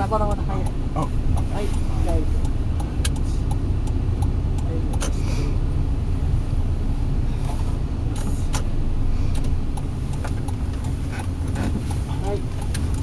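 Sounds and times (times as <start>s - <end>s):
car engine and road rumble: 0.0s - 13.0s
light clicks: 0.3s - 5.2s, 8.1s - 13.0s.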